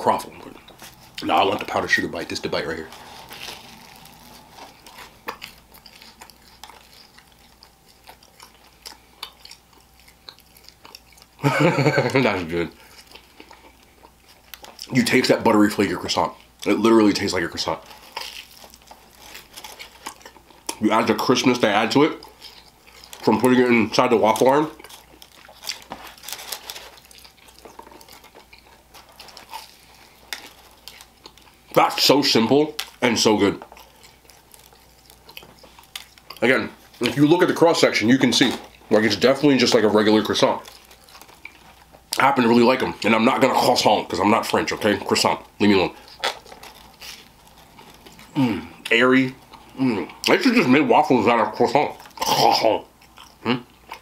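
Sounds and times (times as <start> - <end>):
person crunching pastry: 0.0 - 54.0.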